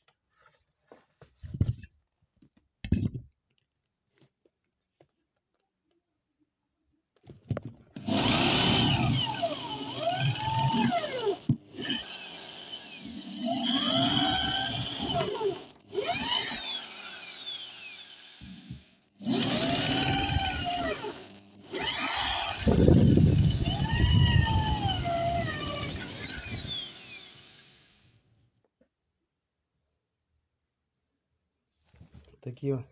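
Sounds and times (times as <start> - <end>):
power tool cutting chipboard: 8.0 - 28.2.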